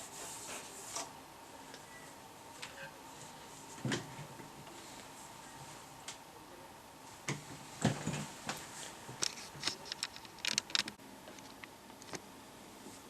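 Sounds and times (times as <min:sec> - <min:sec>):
faint high-pitched tone: 0:01.7 - 0:02.2
small objects clicking and rattling: 0:09.2 - 0:12.2.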